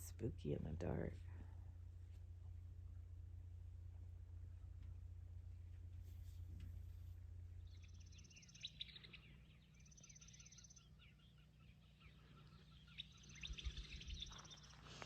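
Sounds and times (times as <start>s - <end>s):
small birds chirping: 0.0s - 15.0s
high rapid bird trill: 7.6s - 14.9s.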